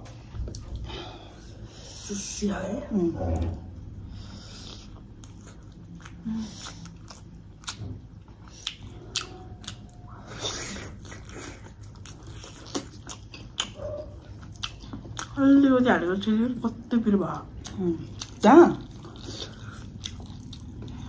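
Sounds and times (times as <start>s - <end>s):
person chewing food: 3.2s - 15.4s, 17.6s - 21.0s.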